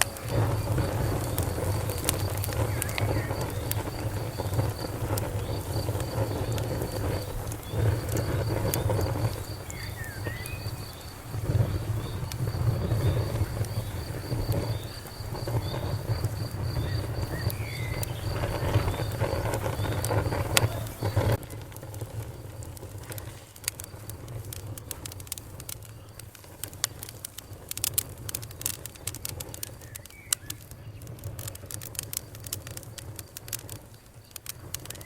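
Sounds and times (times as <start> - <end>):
bird chirping: 0.0 - 21.6
low rumble: 0.0 - 23.2
cricket chirping: 0.0 - 27.6
campfire crackling and popping: 0.0 - 35.0.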